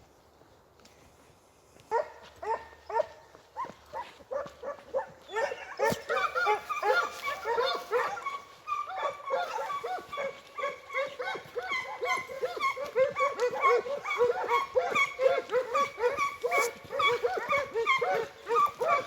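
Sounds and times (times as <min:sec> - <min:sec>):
hounds yelping in chorus: 0:01.9 - 0:19.0.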